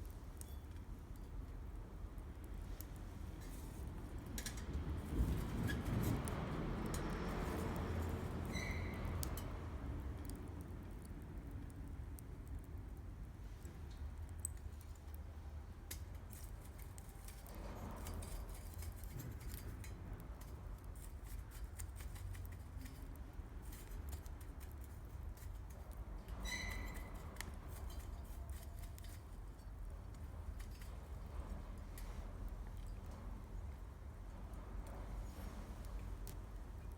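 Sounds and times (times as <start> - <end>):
campfire crackling and popping: 9.1 - 26.1.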